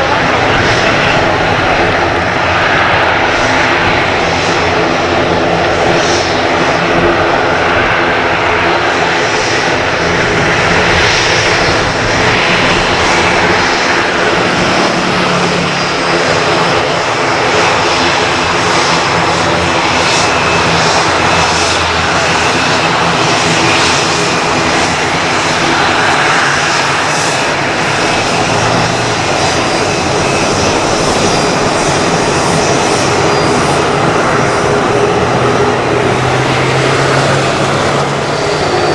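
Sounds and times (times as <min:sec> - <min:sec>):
jet engines roaring: 0:00.0 - 0:38.9.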